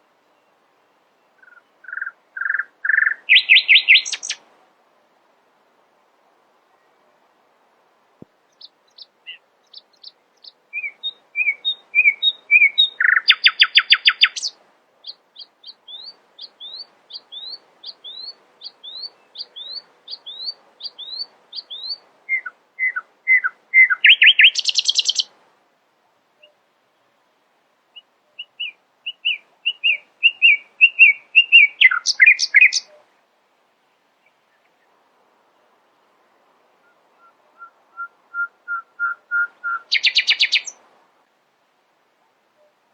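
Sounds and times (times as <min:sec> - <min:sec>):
nightingale singing: 0:00.3 - 0:04.4, 0:08.5 - 0:25.3, 0:27.9 - 0:33.1, 0:36.8 - 0:40.8.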